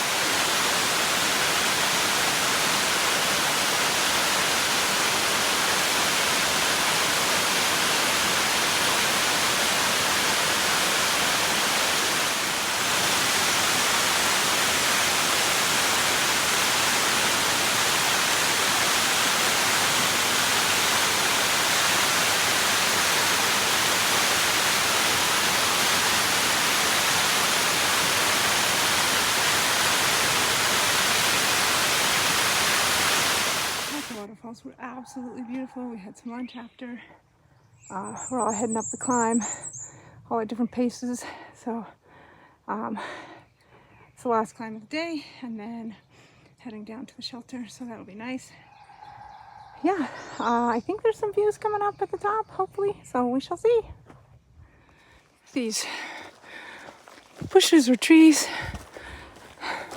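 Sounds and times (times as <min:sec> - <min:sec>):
waterfall roaring: 0:00.0 - 0:34.3, 0:57.4 - 0:58.9.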